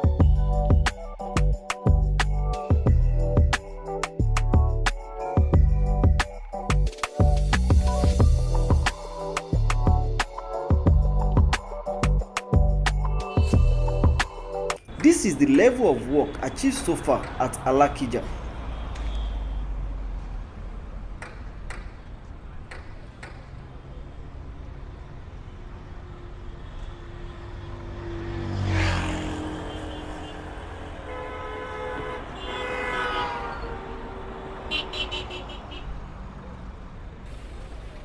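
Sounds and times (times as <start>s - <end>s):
rumble of road traffic: 0.0s - 38.0s
vehicle passing loudly: 27.0s - 31.2s
vehicle horn honking: 29.7s - 34.0s, 34.7s - 36.0s.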